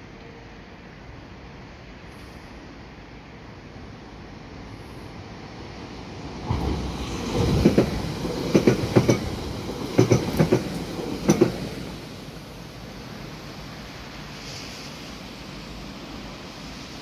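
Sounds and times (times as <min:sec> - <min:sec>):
rush of passing train: 0:00.0 - 0:17.0
wheels clacking over rail joints: 0:06.4 - 0:12.4.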